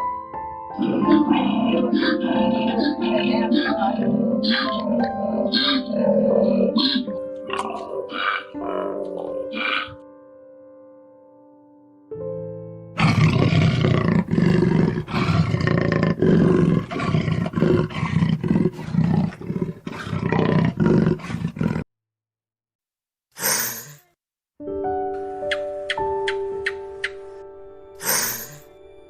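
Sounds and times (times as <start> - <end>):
big cat roaring: 0.8 - 10.0, 13.0 - 21.9.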